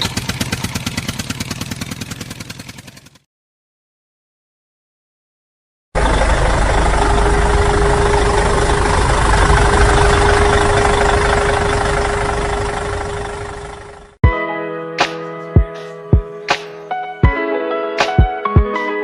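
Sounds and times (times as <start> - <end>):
tractor engine running: 0.0 - 3.2, 6.0 - 14.2
guitar music: 14.2 - 19.0.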